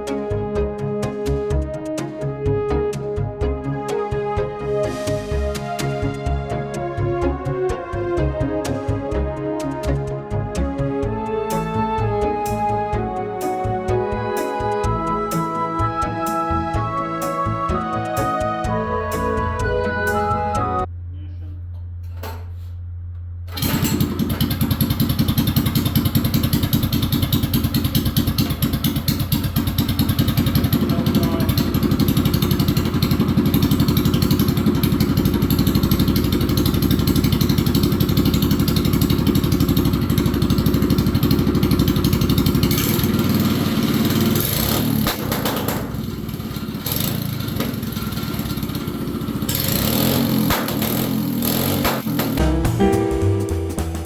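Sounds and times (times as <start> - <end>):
minibike engine starting and running: 23.5 - 53.8.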